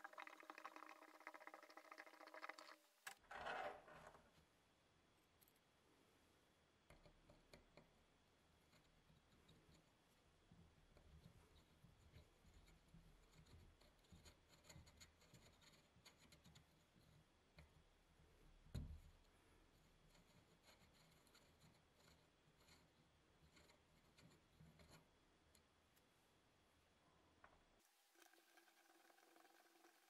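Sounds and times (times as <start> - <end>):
scratching and rubbing of hand work: 6.8 - 17.8, 19.1 - 25.2.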